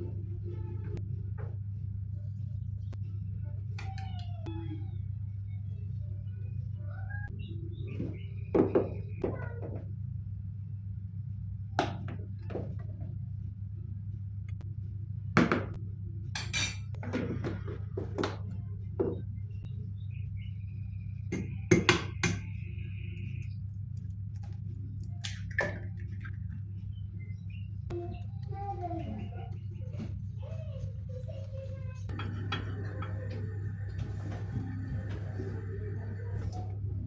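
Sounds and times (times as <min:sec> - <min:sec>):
dishes and utensils clinking: 0:16.4 - 0:17.6, 0:32.1 - 0:36.7.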